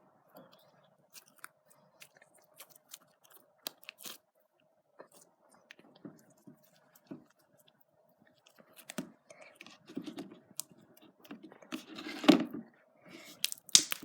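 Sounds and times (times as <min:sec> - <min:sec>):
slime squished by hand: 0:13.2 - 0:14.0.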